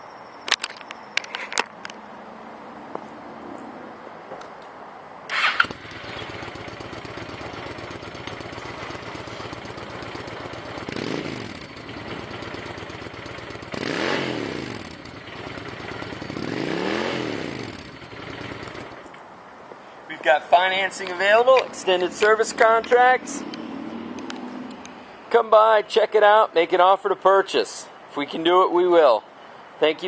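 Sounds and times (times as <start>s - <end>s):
motorcycle engine idling and revving: 5.3s - 19.1s, 20.9s - 25.0s
motorcycle engine starting: 5.3s - 19.1s, 20.2s - 24.8s.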